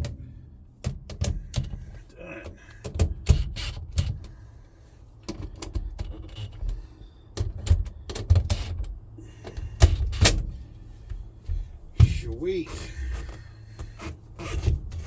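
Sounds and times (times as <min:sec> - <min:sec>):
dull low thumps: 0:09.7 - 0:14.0.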